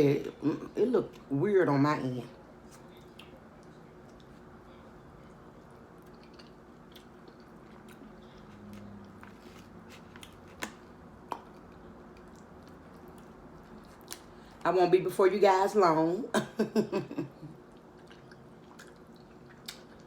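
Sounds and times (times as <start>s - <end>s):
person chewing soft food: 2.6s - 14.6s, 17.6s - 20.0s.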